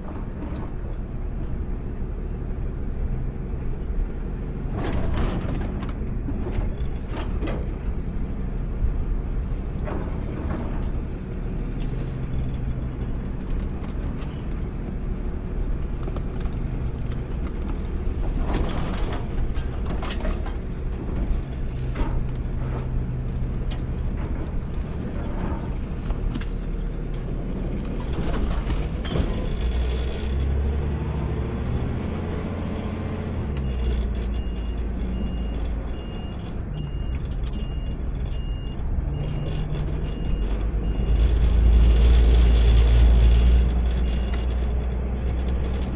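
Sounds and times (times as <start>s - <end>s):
garbage truck diesel engine: 0.0s - 45.9s
knocks and clatters: 4.7s - 7.8s, 15.8s - 30.8s.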